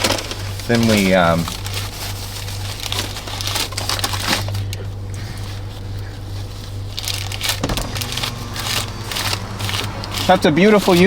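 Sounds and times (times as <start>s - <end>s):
paper wrapper crinkling: 1.0s - 4.8s.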